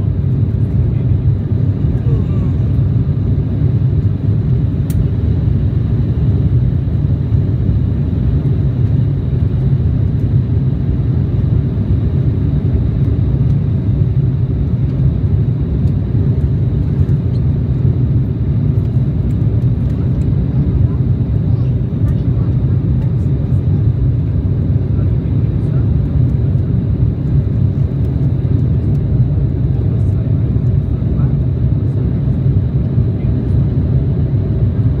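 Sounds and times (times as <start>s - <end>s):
jet cabin engine rumble: 0.0s - 35.0s.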